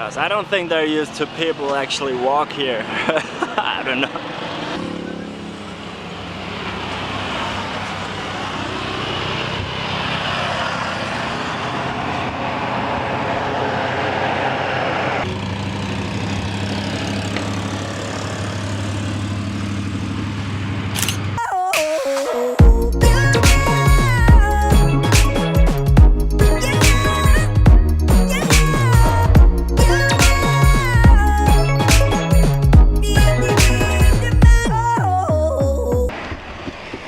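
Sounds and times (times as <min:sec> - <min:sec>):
vehicle engine running: 0:07.8 - 0:21.4.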